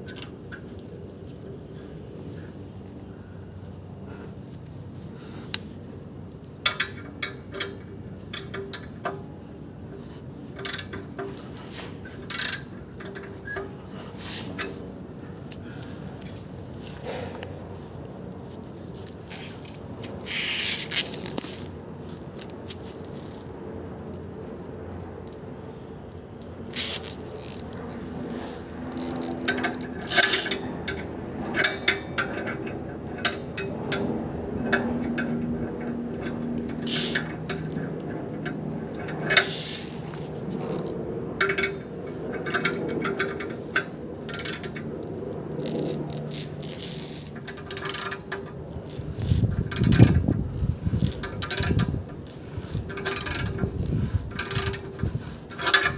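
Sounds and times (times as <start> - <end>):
steady low hum: 0.0 - 55.9
hand tools scraping on metal: 36.3 - 37.8.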